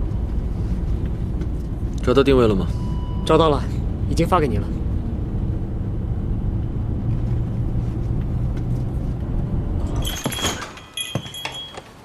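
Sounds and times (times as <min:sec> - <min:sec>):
car rumbling on the move: 0:00.0 - 0:10.2
clicks and jingling: 0:09.8 - 0:12.0.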